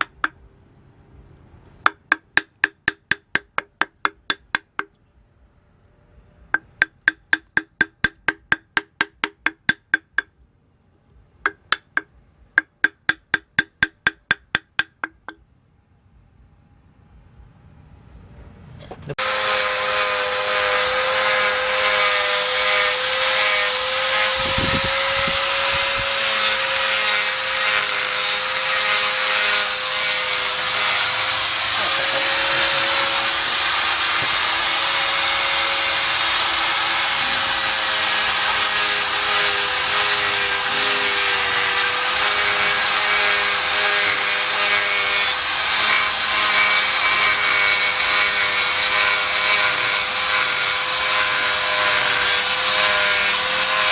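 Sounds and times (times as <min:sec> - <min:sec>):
electric power tool under load: 0:19.2 - 0:53.9.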